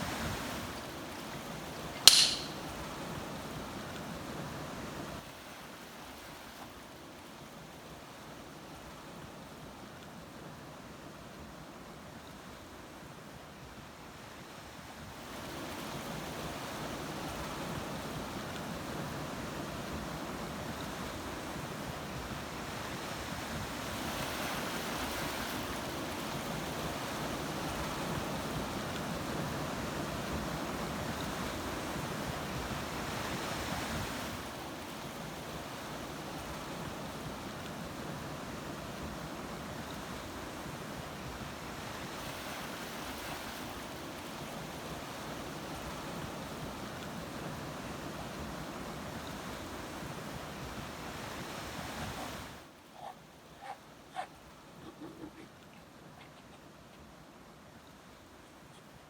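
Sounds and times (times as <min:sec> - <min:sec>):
waves breaking: 0:15.2 - 0:59.0.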